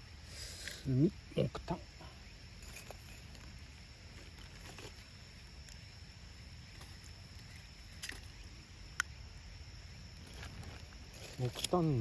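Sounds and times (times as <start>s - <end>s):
high insect drone: 0.0s - 12.0s
charcoal clicks and knocks: 10.2s - 12.0s.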